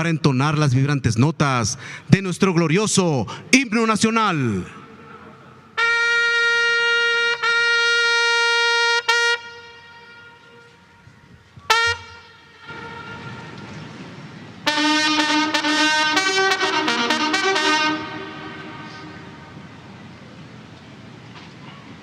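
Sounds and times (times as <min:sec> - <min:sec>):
brass call held notes: 0:05.7 - 0:13.7, 0:14.6 - 0:19.8
brass band playing: 0:05.8 - 0:14.0, 0:14.6 - 0:19.8.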